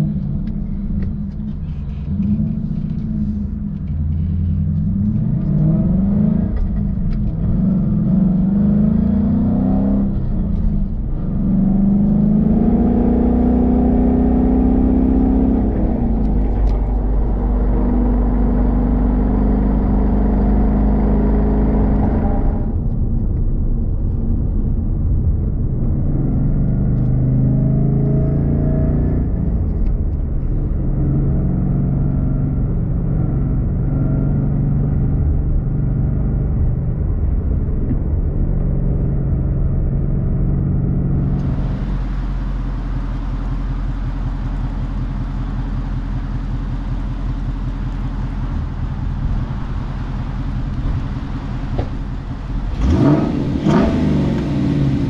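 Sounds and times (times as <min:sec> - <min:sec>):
car engine running: 0:00.0 - 0:55.0
engine revving: 0:01.9 - 0:22.8, 0:38.7 - 0:55.0.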